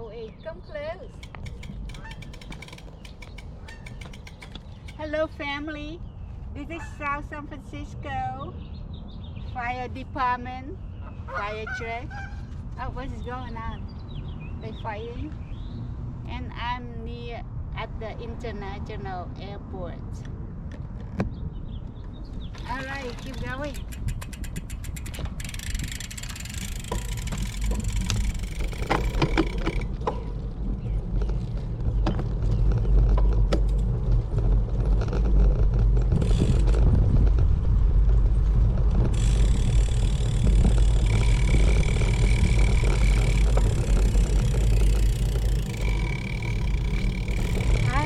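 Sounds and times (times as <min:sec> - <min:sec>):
passing traffic: 0:00.0 - 0:48.0
wind rumble on microphone: 0:00.0 - 0:48.0.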